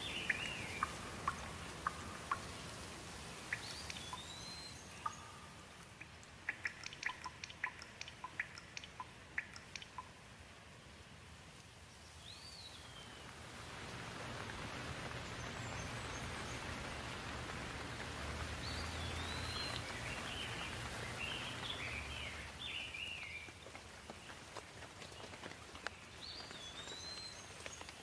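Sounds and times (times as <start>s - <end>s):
songbirds whistling: 0.0s - 2.6s, 3.5s - 5.4s, 18.6s - 23.6s, 26.2s - 28.0s
steady rain: 0.0s - 28.0s.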